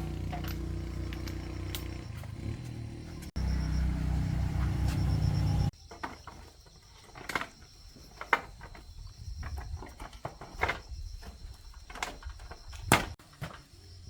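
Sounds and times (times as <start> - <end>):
motorbike engine running: 0.0 - 5.7.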